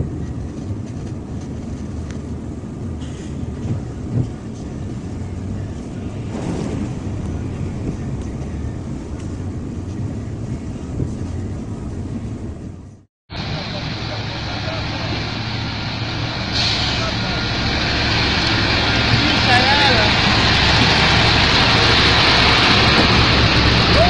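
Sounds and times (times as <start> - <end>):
large vehicle engine running: 0.0 - 24.0
short rush of noise: 5.9 - 10.4.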